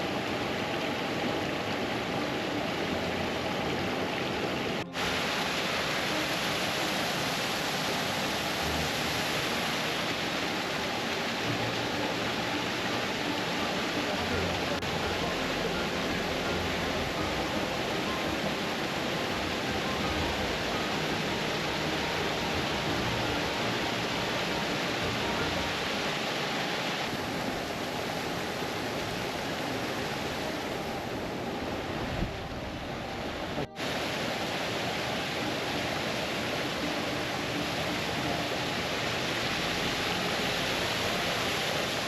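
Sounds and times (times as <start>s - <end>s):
stream rushing over waterfalls: 0.0s - 42.0s.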